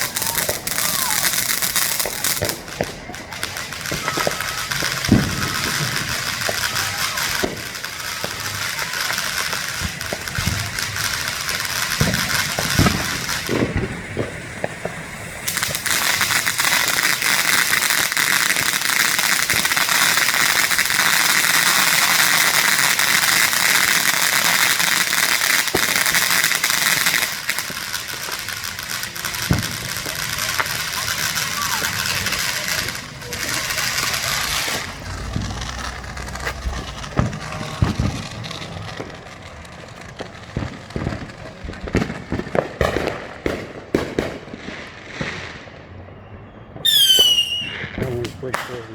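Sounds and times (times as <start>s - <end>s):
dense fireworks crackling: 0.0s - 48.9s
fireworks pops and bangs: 0.0s - 48.9s.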